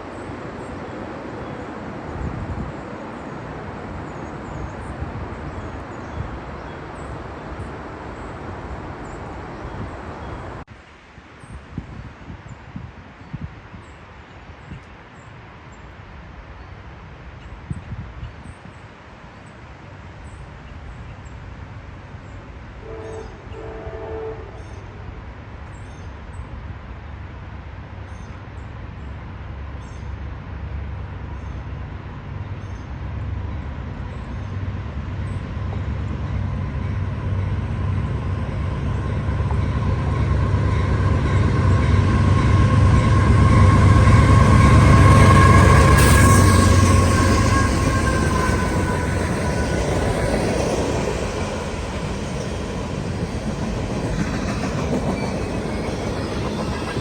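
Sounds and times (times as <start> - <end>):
locomotive horn: 22.8 - 25.1, 39.4 - 50.1
diesel locomotive rumble: 28.0 - 57.0.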